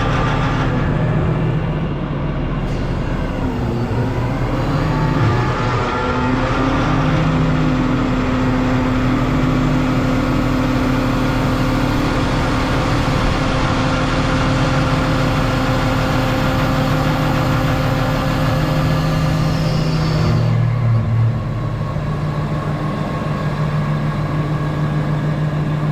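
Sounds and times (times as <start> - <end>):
excavator diesel engine humming: 0.0 - 25.9
held engine tones: 0.0 - 25.9.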